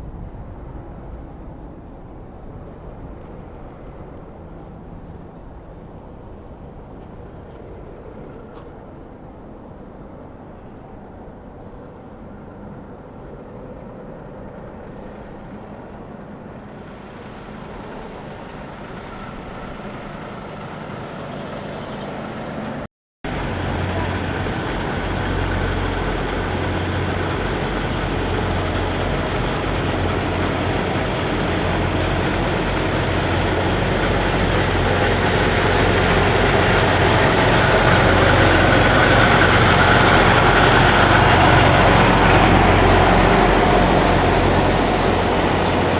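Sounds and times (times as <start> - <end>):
truck engine approaching: 16.8 - 45.9.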